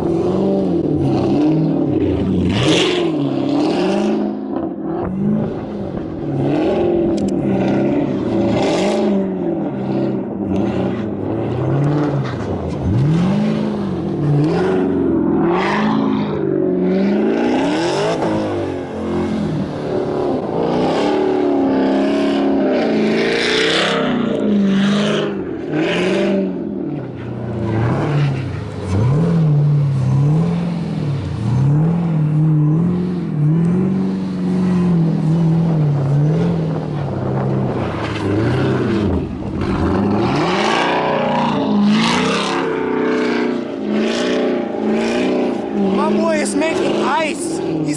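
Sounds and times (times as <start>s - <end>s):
car engine revving: 0.0s - 47.9s
bursts of rushing noise: 4.6s - 10.0s.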